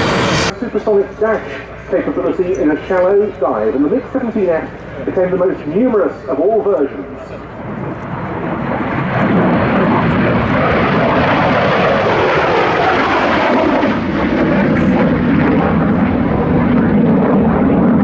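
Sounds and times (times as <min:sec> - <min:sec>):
jet fighter flying past: 0:00.0 - 0:00.6, 0:06.8 - 0:18.0.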